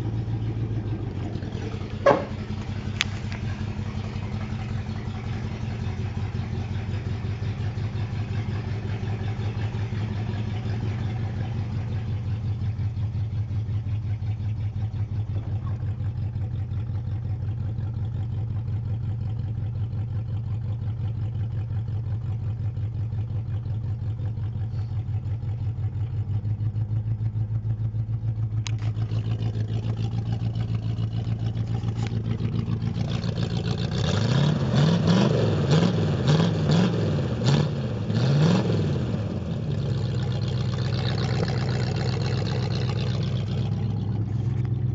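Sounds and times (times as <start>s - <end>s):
car engine revving: 0.0s - 13.8s, 28.6s - 44.9s
car engine idling: 0.0s - 44.9s.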